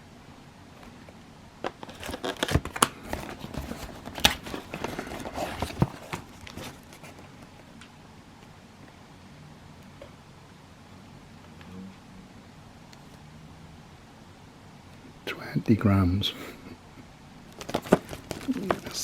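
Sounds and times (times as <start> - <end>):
cardboard packaging crinkling: 1.7 - 7.4, 17.5 - 19.0.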